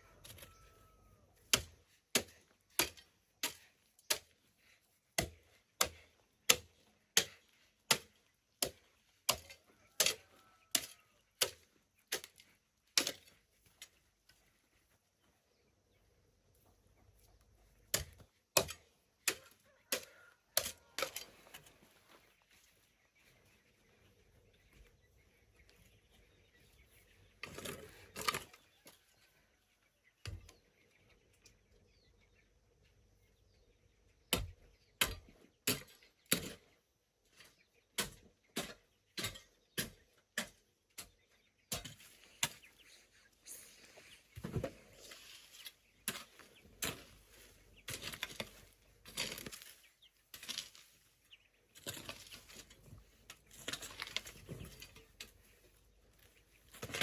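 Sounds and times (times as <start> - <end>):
hand tool striking the ground: 1.4 - 4.4, 5.1 - 14.0, 17.8 - 21.7, 34.3 - 36.6, 37.4 - 42.8, 44.4 - 50.9, 51.7 - 55.4, 56.6 - 57.0.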